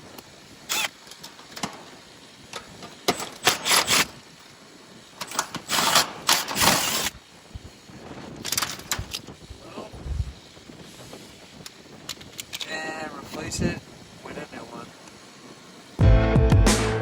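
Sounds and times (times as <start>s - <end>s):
cordless drill bursts: 0.6s - 1.3s, 3.0s - 4.2s, 5.2s - 7.2s.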